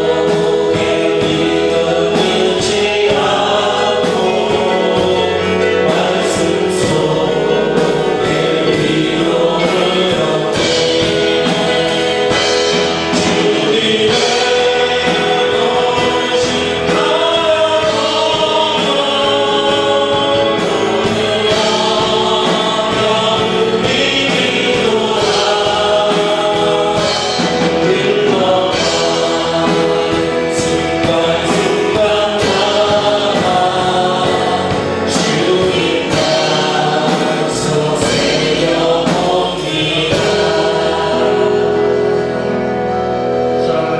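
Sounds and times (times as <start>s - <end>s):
group singing worship song: 0.0s - 43.9s
instrumental accompaniment with beat: 0.0s - 43.9s.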